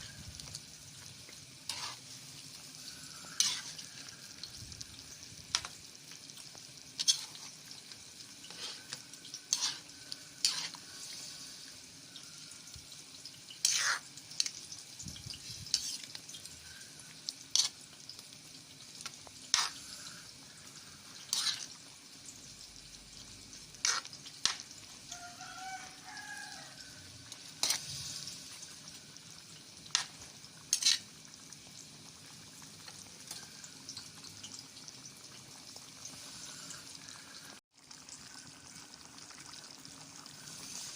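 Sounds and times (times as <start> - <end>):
chicken sizzling in a pan: 0.0 - 40.9.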